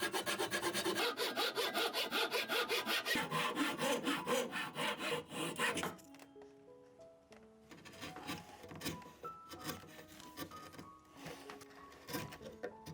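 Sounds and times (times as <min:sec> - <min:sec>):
hand saw cutting wood: 0:00.0 - 0:06.0, 0:07.8 - 0:12.9
soft background music: 0:00.0 - 0:12.9.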